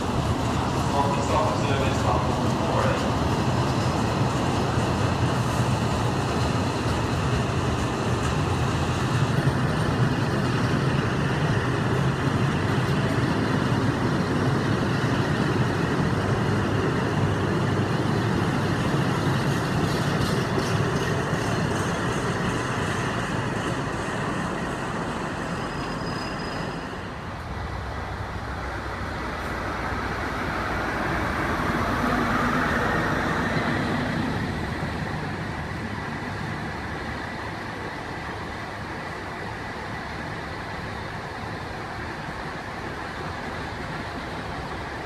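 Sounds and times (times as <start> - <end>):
train wheels clicking over rail joints: 0.0 - 27.6
coach wheels rumbling on rails: 0.0 - 45.0
diesel engine humming: 0.0 - 45.0.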